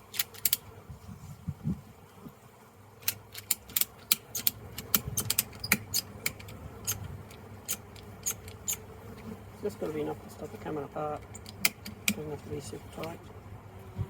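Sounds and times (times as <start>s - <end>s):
ratchet strap clicking: 0.1s - 0.6s, 3.0s - 8.8s.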